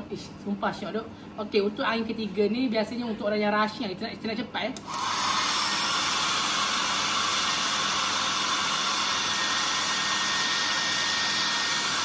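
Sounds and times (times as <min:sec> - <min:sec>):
hair dryer blowing air: 0:04.8 - 0:12.0.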